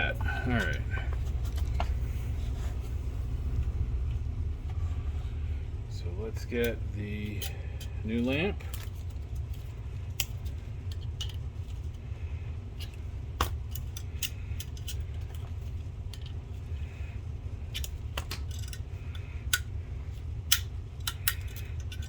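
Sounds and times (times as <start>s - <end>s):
low hum: 0.0s - 22.0s
plastic and metal parts clicking: 17.7s - 19.7s, 20.5s - 22.0s.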